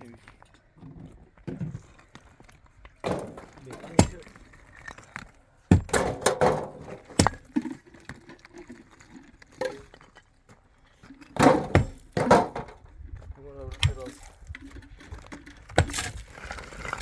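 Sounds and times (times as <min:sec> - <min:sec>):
hard objects knocking and clinking: 0:03.0 - 0:10.1, 0:11.2 - 0:12.8.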